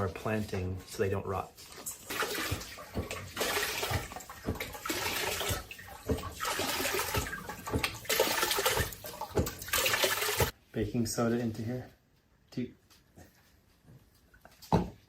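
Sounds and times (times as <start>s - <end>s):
water pouring into a bowl: 1.7s - 10.5s.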